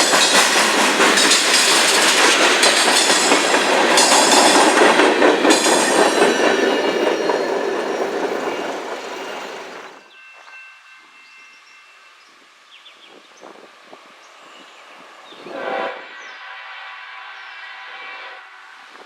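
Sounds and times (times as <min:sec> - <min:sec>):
wheels clicking over rail joints: 0:00.0 - 0:10.0
train cars rumbling past: 0:00.0 - 0:11.0.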